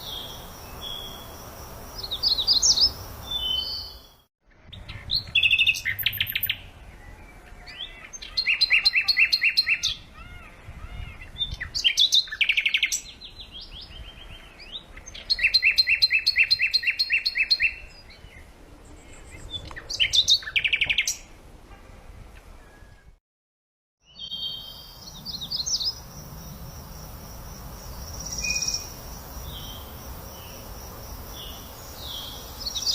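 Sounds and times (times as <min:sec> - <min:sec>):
songbird trilling: 0:02.0 - 0:04.1, 0:04.7 - 0:06.6, 0:07.6 - 0:17.9, 0:27.9 - 0:30.6.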